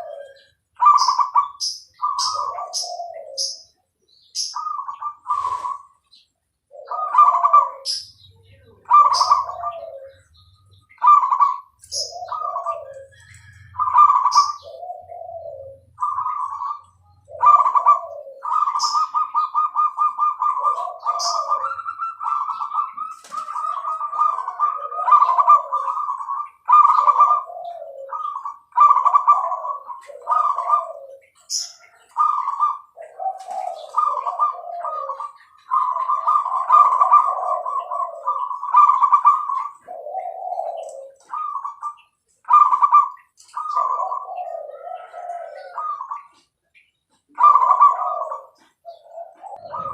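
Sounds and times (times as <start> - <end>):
dove cooing: 0.0 - 49.9
small bird chirping: 0.0 - 49.9.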